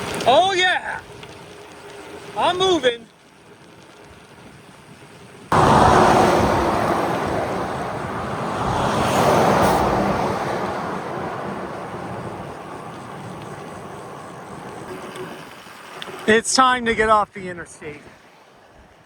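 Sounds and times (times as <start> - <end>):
wind on microphone: 5.5 - 15.3
highway traffic: 5.5 - 16.4.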